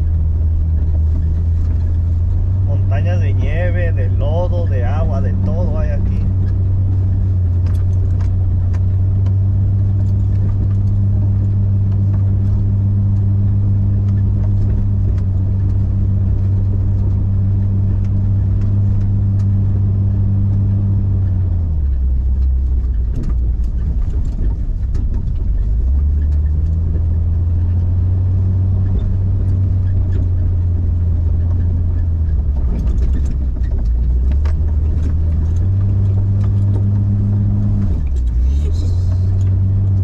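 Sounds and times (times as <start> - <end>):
car engine running under load: 0.0 - 40.0
knocks and rattles over bumps: 0.0 - 40.0.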